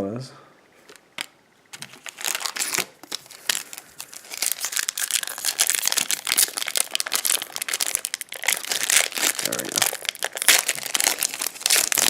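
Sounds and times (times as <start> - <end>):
plastic wrapper crinkling: 0.8 - 12.0.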